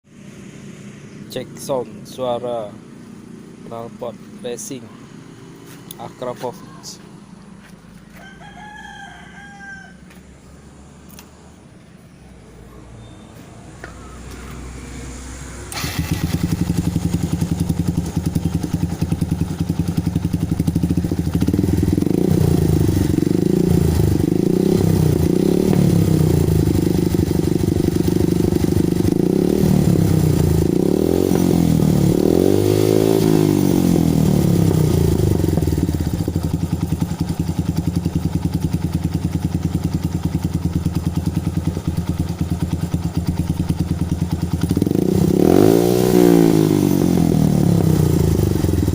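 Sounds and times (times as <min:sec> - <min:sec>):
motorcycle engine revving: 0:12.9 - 0:48.9.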